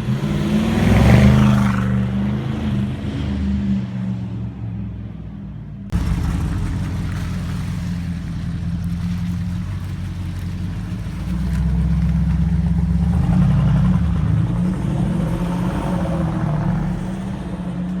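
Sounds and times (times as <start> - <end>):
car engine running: 5.9 - 17.6.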